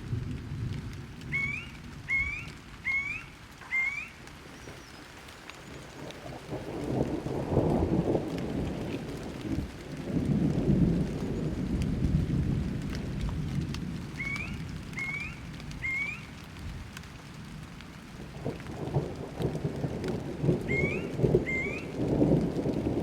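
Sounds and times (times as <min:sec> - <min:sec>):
steady rain: 0:00.0 - 0:23.0
bird chirping: 0:01.3 - 0:06.0, 0:14.2 - 0:16.3, 0:20.7 - 0:21.9
rolling thunder: 0:05.7 - 0:17.6, 0:18.2 - 0:23.0.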